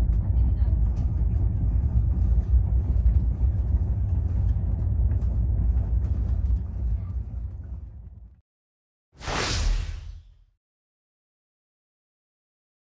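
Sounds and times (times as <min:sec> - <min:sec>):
train wheels rumbling on track: 0:00.0 - 0:08.2.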